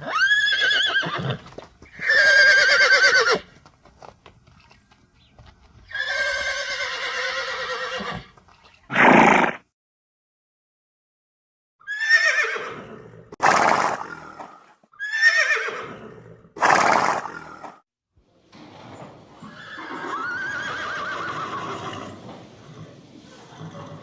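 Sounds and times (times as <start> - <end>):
horse neighing: 0.0 - 3.5, 5.9 - 8.3, 8.9 - 9.6, 11.8 - 14.4, 15.0 - 17.7, 18.9 - 24.0
horse breathy snort: 21.8 - 24.0.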